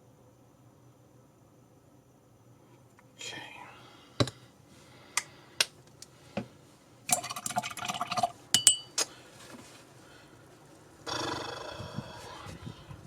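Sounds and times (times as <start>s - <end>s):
glass clinks: 8.6s - 9.0s.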